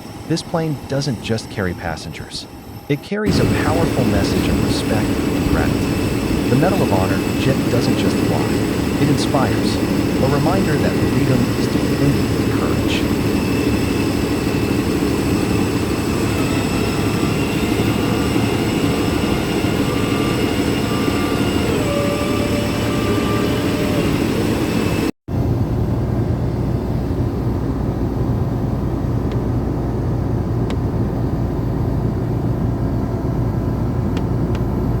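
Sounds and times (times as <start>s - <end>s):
jet engines whining: 0.0s - 35.0s
dull low engine rumble: 3.0s - 20.9s.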